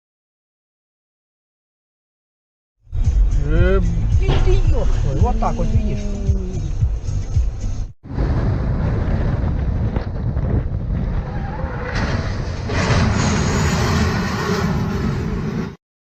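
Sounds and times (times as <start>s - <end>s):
car engine and road rumble: 2.9s - 15.8s
wind buffeting: 3.9s - 15.7s.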